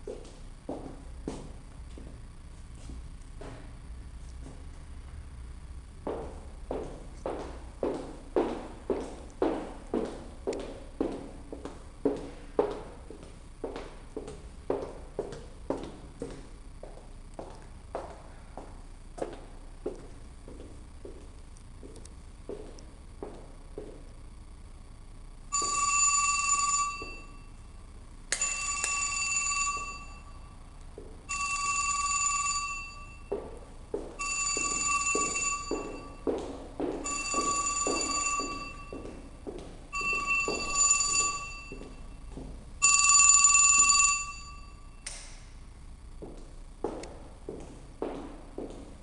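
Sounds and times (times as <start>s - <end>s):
footsteps on hard floor: 0.0s - 4.8s, 6.0s - 24.1s, 31.0s - 31.3s, 33.3s - 42.8s, 46.2s - 49.0s
telephone bell ringing: 25.5s - 27.6s, 28.4s - 30.6s, 31.2s - 33.4s, 34.1s - 42.2s, 42.8s - 45.0s.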